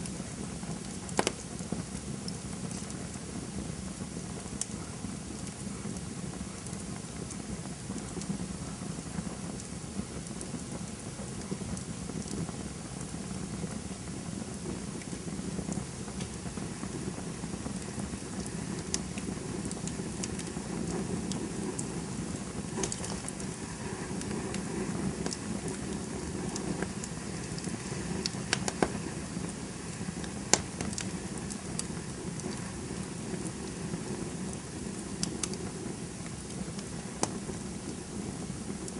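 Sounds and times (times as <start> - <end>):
campfire flames rushing: 0.0 - 38.9
fire crackles and pops: 0.0 - 38.9.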